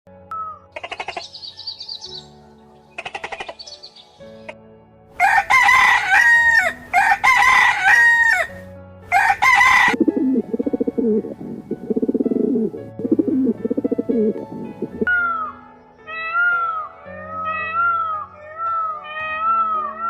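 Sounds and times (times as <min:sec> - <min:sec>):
rooster crowing: 0:05.2 - 0:10.0.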